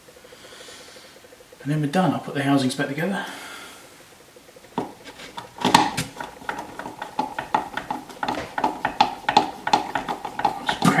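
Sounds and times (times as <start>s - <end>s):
range hood housing clicks and rattles: 4.7s - 11.0s.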